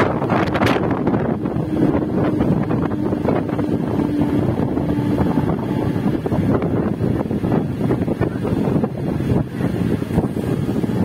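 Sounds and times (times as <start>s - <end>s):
low hum: 0.0s - 8.3s
train running on rails: 0.0s - 11.0s
wind buffeting microphone: 0.0s - 11.0s.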